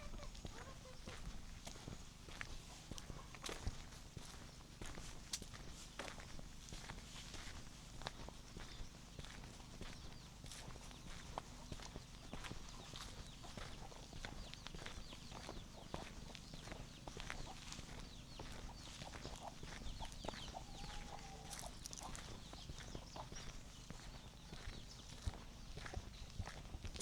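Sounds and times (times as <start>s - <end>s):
chicken call: 0.0s - 1.0s
footsteps on path: 0.0s - 27.0s
small birds chirping: 0.0s - 27.0s.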